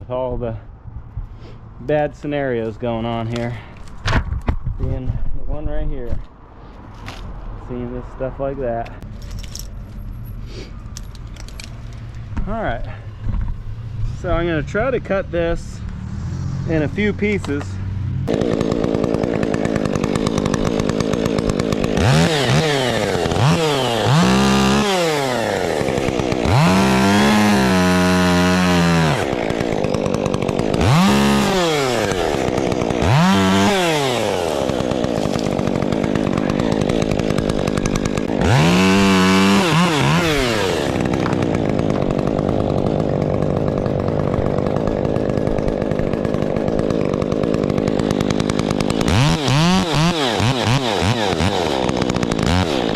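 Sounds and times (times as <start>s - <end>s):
chainsaw revving: 15.5s - 52.9s.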